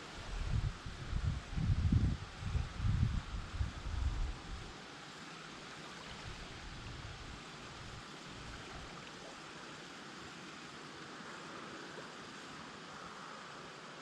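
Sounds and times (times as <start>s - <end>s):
wind buffeting microphone: 0.2s - 4.7s
river water rushing: 4.1s - 14.0s.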